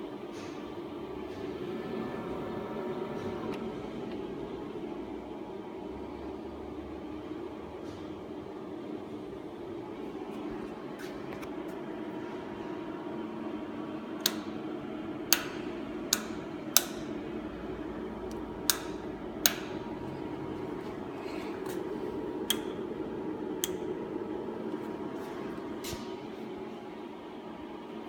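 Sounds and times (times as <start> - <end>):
cooling fan humming: 0.0 - 28.0
sharp clicks: 14.2 - 14.6.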